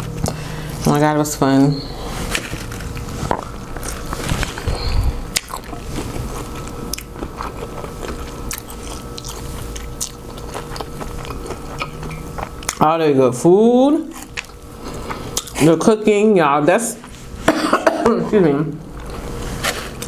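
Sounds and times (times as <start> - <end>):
person chewing food: 1.9 - 12.8, 14.1 - 15.7.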